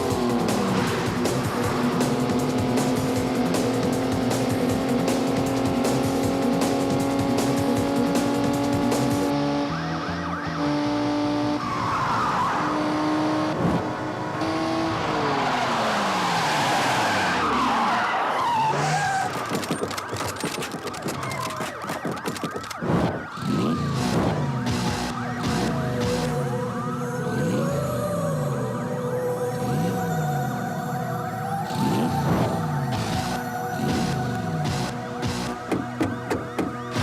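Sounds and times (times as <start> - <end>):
car engines: 0.0 - 37.0
tyres squealing: 16.2 - 22.6.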